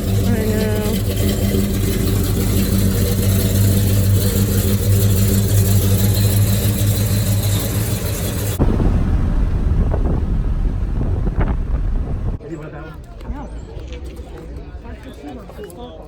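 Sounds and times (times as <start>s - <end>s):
car engine drone: 0.0s - 12.4s
wind buffeting microphone: 0.0s - 12.5s
road noise: 0.0s - 15.5s.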